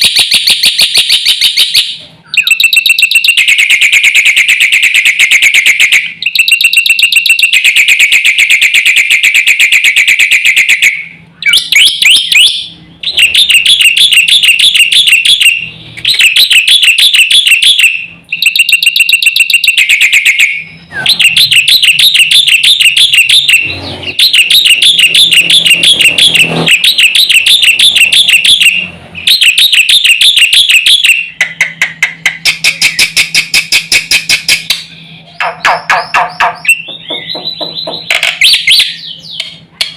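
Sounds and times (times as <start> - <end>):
bird harsh chattering song: 11.4 - 22.2, 31.1 - 39.9.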